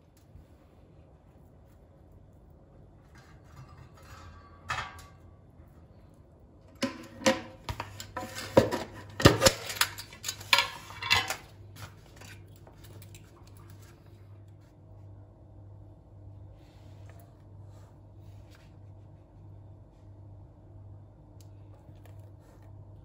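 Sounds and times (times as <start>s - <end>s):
dishes and utensils clinking: 6.8s - 11.6s.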